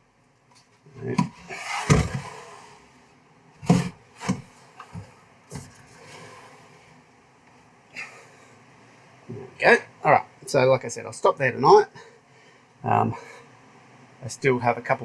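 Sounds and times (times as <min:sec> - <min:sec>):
wooden drawer sliding: 0:01.1 - 0:02.8, 0:03.6 - 0:06.9.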